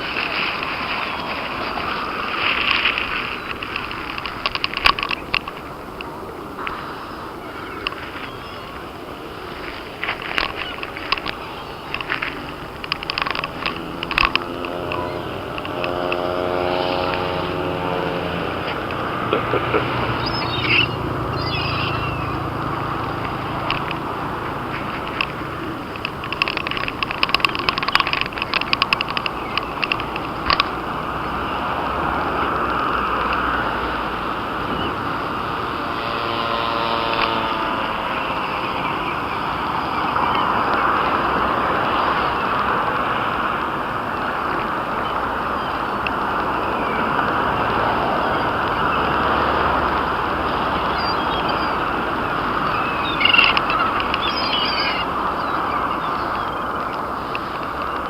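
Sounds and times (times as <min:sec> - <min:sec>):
seagulls calling: 0:00.0 - 0:58.0
steady rushing traffic noise: 0:00.0 - 0:58.0
sharp clicks: 0:02.4 - 0:06.8, 0:18.4 - 0:31.2.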